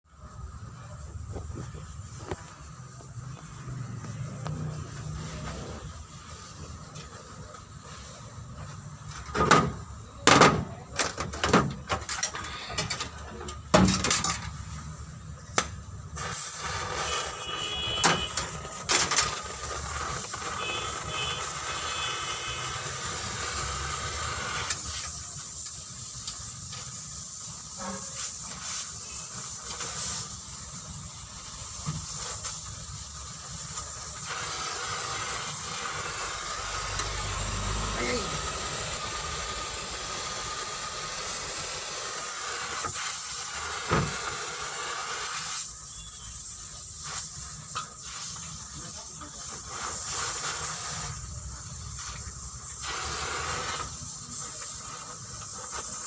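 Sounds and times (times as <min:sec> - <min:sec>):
steady hiss: 0:00.0 - 0:56.0
sharp knocks and clatters: 0:09.1 - 0:14.6.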